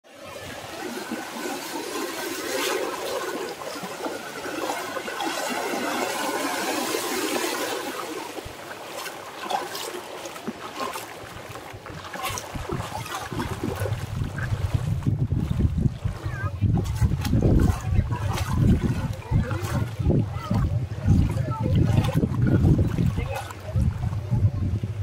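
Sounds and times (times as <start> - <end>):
small waves washing on sand: 0.1 - 25.0.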